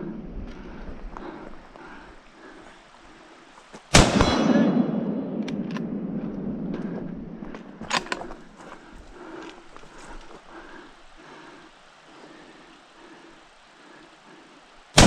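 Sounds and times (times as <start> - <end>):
loud gunshot with echo: 4.0 - 6.1.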